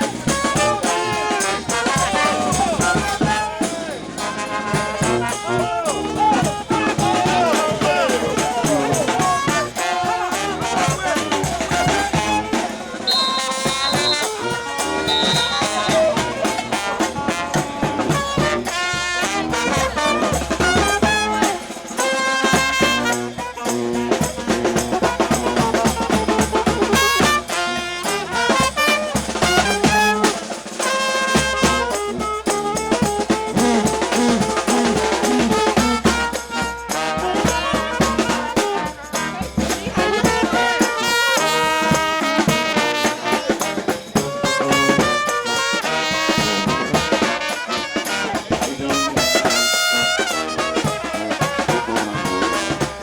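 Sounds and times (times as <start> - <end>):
brass band playing: 0.0 - 53.0
snare and bass drum: 0.0 - 53.0
trumpets and trombones: 0.0 - 53.0.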